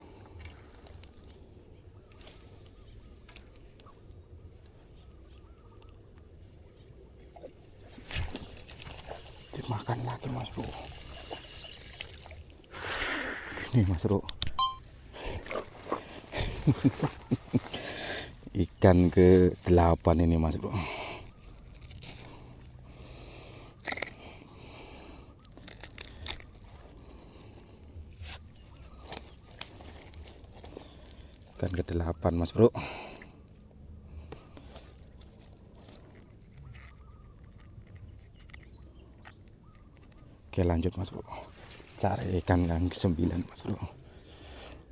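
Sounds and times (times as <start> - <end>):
fast pulsed insect chirping: 0.0 - 44.9
insect high trill: 0.0 - 44.9
faint wavering calls: 7.2 - 13.8.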